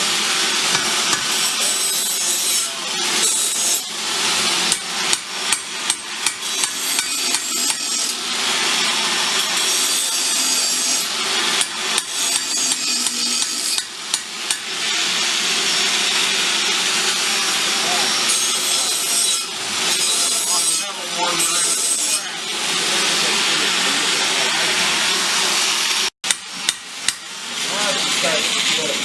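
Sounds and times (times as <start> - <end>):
hammer striking steel on anvil: 0.7 - 3.9, 4.6 - 8.2, 9.4 - 14.8, 26.2 - 27.4.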